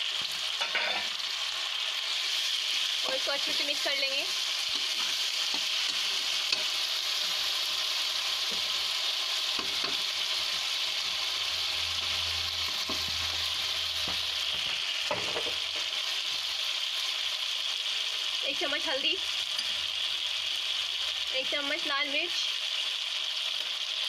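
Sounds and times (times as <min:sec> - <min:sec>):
onions sizzling in hot oil: 0:00.0 - 0:24.0
steel spatula stirring: 0:04.6 - 0:07.5.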